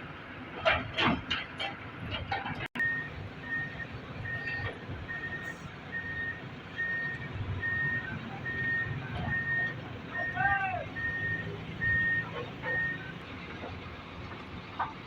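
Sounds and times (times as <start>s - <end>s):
diesel engine rumble: 0.0s - 15.0s
reversing alarm beeping: 2.8s - 13.2s.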